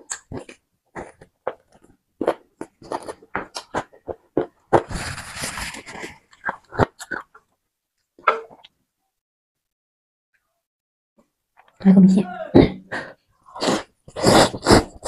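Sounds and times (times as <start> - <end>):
wet chewing and lip-smacking: 0.0 - 4.9, 5.9 - 7.5
paper tissue rustling: 4.9 - 6.2.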